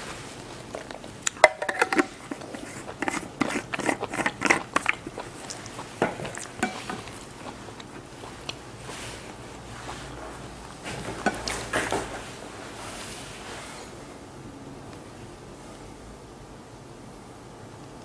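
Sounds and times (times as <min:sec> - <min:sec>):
wet mouth clicks and smacks chewing: 0:00.8 - 0:09.0.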